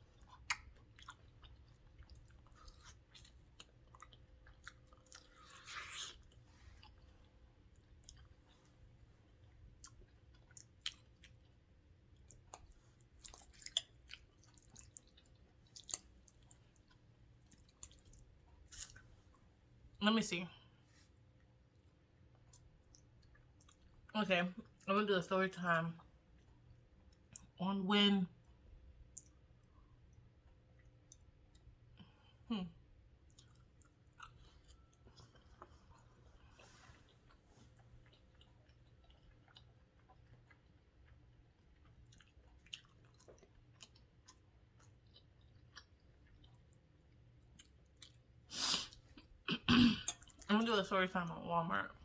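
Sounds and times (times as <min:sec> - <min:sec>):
close-up chewing: 0:00.0 - 0:19.6, 0:33.2 - 0:50.5
wet mouth clicks and smacks: 0:00.4 - 0:01.1, 0:29.1 - 0:29.4.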